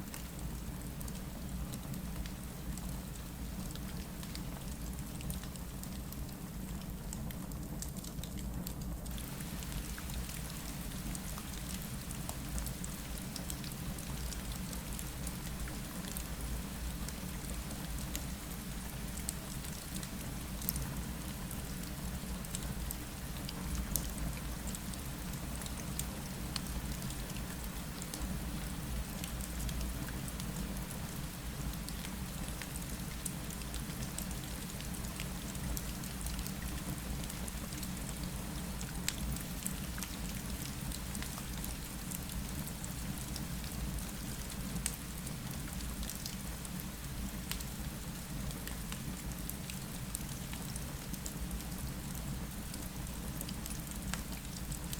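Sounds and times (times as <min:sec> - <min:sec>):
rain on a window: 0:00.0 - 0:54.9
fireplace fire crackling: 0:08.0 - 0:22.7.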